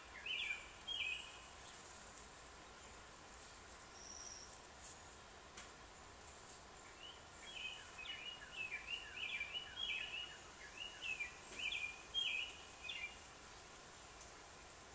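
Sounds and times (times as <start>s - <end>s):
songbird singing: 0.0s - 4.7s, 5.8s - 14.9s
faint steady hiss: 0.0s - 14.9s.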